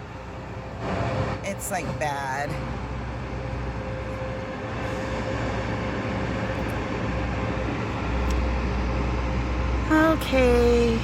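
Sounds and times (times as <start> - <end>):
car cabin rumble and hiss: 9.9 - 11.0.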